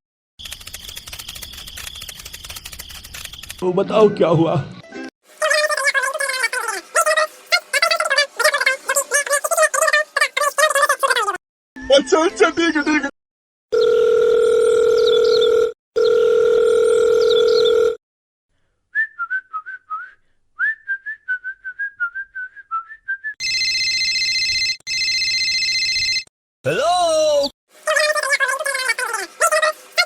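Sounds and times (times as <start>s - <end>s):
long telephone beeps: 23.4s - 26.3s.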